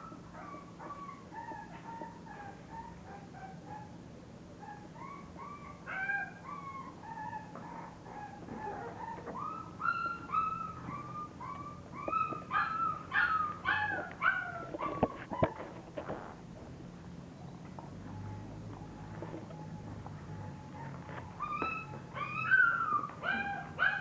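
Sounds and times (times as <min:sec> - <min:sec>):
puppies whimpering and crying: 0:00.0 - 0:04.0, 0:04.6 - 0:15.8, 0:20.3 - 0:24.0.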